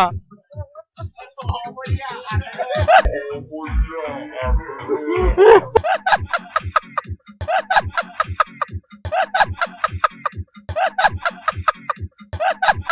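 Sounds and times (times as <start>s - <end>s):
low thumps: 3.0s - 5.8s.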